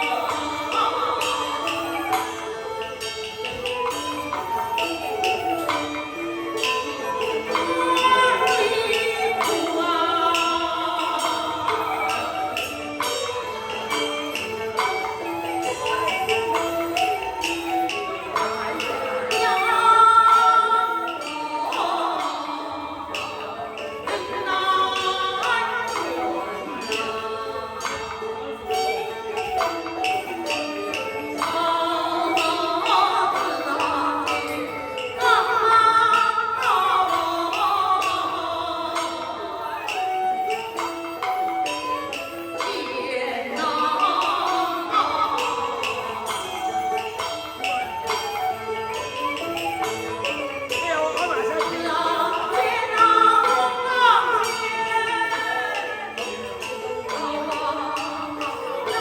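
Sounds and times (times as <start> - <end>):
sharp percussion strokes: 0.0 - 59.0
traditional ensemble music: 0.0 - 59.0
opera singing: 6.5 - 12.6, 18.4 - 28.6, 31.2 - 40.5, 42.6 - 46.6, 50.9 - 59.0.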